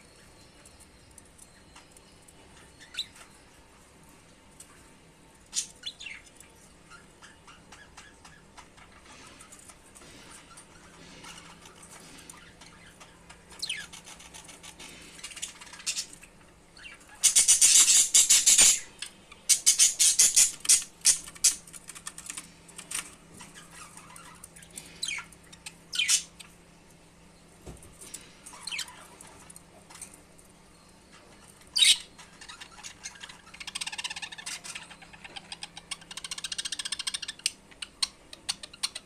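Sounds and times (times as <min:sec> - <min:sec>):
budgerigars chirping and chattering: 0:02.4 - 0:03.3, 0:05.5 - 0:21.7, 0:23.0 - 0:26.5, 0:28.2 - 0:29.5, 0:31.1 - 0:39.0.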